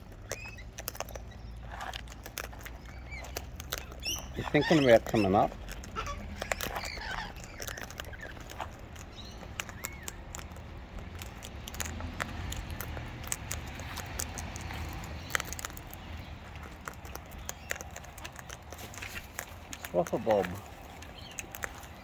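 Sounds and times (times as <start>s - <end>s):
faint bird chirp: 0.0s - 1.8s, 2.6s - 10.2s
beaks and claws tapping: 0.0s - 22.0s
steady low rumble: 5.5s - 22.0s.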